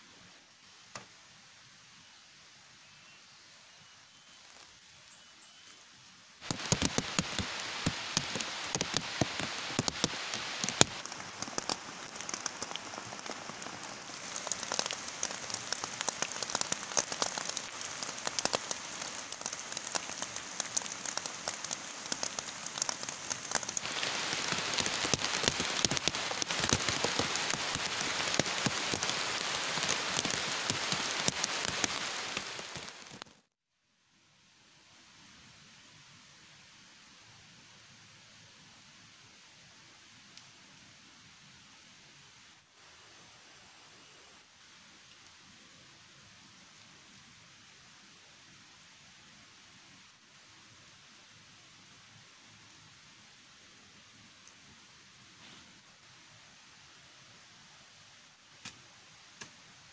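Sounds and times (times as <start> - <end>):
heavy rain falling: 6.4 - 33.5
raindrops striking close by: 6.4 - 33.5.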